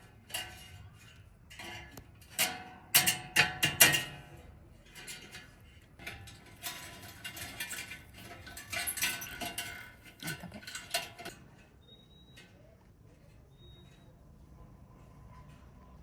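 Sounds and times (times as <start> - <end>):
steel wheel clinking: 0.0 - 12.5.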